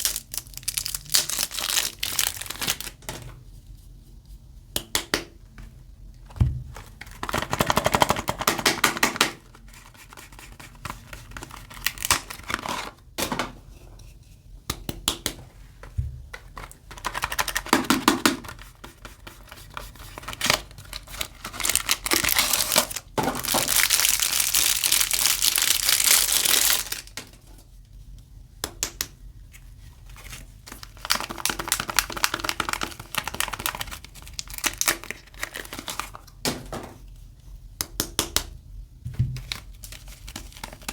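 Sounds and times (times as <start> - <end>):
packaging crinkling and tearing: 0.0 - 3.1, 10.8 - 13.0, 20.0 - 27.2, 30.2 - 36.3, 39.4 - 40.9.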